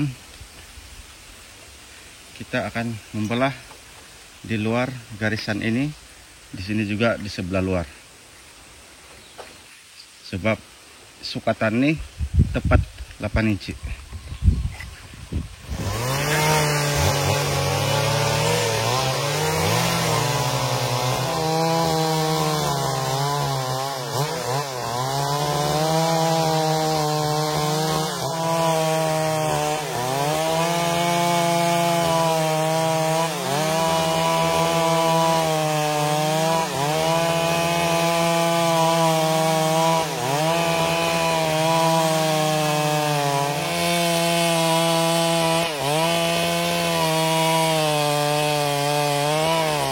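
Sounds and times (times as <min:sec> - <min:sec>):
chainsaw cutting a log: 0:15.3 - 0:49.9.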